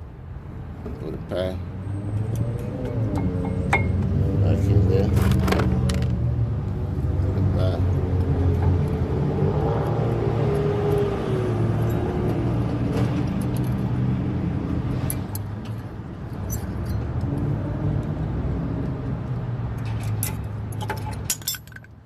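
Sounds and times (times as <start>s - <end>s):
metal brake parts clinking: 16.4s - 17.1s, 19.8s - 22.0s.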